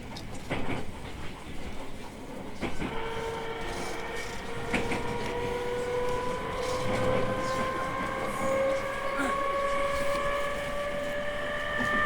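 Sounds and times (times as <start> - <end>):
electric train interior running: 0.0 - 12.0
rail-joint clacks: 0.0 - 12.0
motor whine rising in pitch: 3.3 - 12.0.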